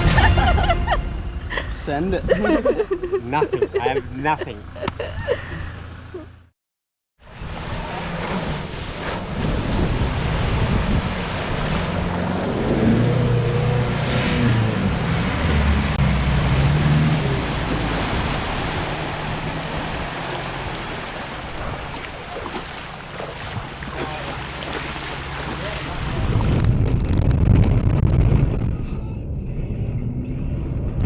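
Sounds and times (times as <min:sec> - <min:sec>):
vehicle engine working hard: 0:03.2 - 0:06.5, 0:07.4 - 0:26.2
water rushing and splashing: 0:07.2 - 0:27.2.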